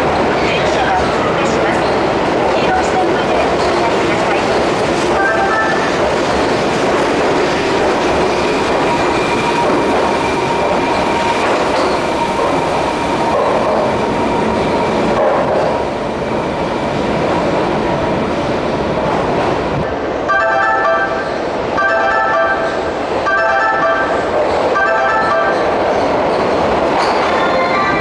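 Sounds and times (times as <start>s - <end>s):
electric train rumbling: 0.0s - 28.0s
melodic station chime: 5.2s - 6.0s, 20.3s - 25.8s.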